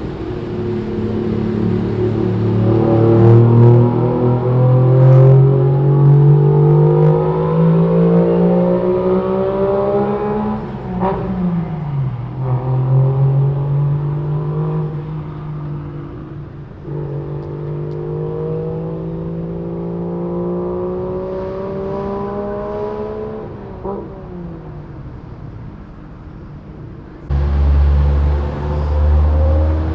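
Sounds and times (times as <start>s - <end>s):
car engine accelerating: 0.0s - 25.3s, 27.2s - 29.9s.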